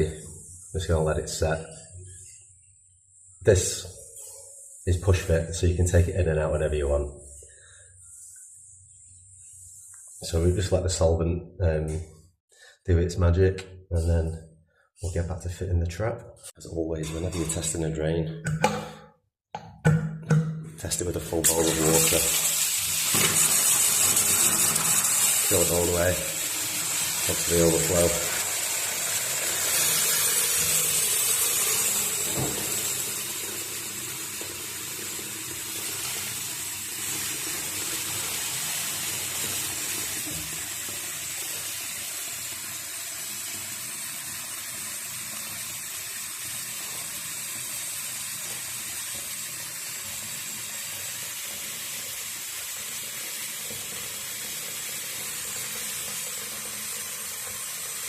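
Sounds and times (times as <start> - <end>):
tap running into washbasin: 21.5 - 58.0.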